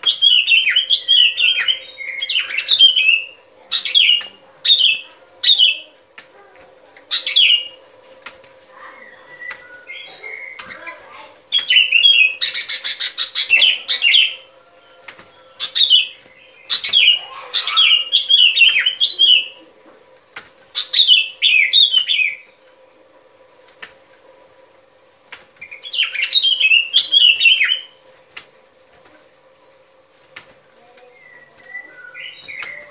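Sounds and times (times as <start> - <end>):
bird singing whistled notes: 0.0 - 5.8, 8.9 - 10.8, 11.5 - 14.5, 15.5 - 19.6, 20.8 - 22.6, 25.6 - 28.0, 31.0 - 32.9
faint steady hum: 0.0 - 32.9.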